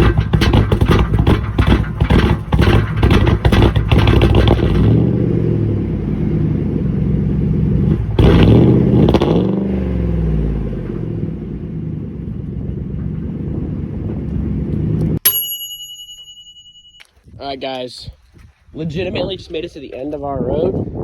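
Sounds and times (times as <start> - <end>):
engine running rough and revving: 0.0 - 15.2.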